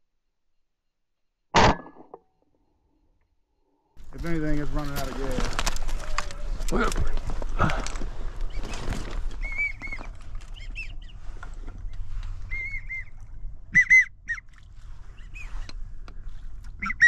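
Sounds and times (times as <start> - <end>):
duck whistling: 9.4 - 11.2, 12.4 - 14.5, 16.8 - 17.0.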